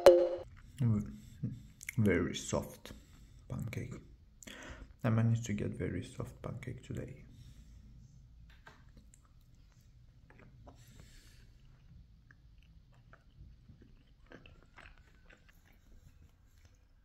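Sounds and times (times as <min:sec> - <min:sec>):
faint chewing: 0:00.5 - 0:02.2, 0:08.6 - 0:17.0.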